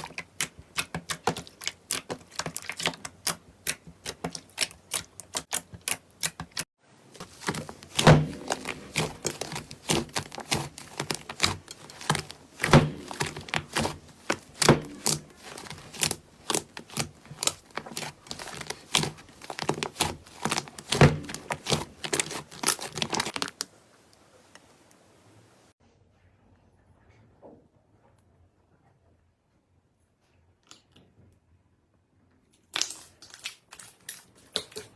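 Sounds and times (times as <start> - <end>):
slime squeezed crackling and popping: 7.2 - 23.6.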